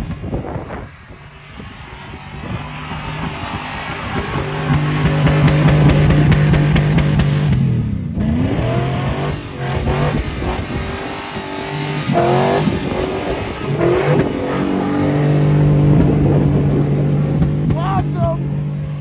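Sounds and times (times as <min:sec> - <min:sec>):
truck engine revving: 0:00.0 - 0:19.0.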